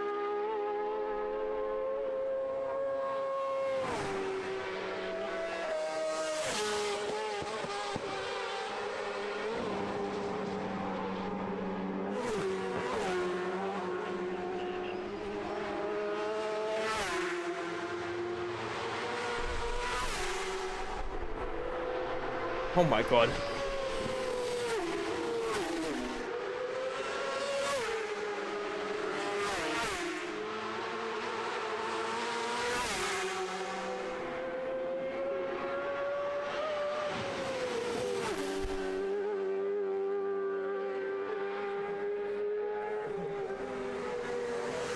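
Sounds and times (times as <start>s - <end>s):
motorcycle engines at high revs: 0.2s - 44.9s
motorcycles rushing past: 12.1s - 30.4s.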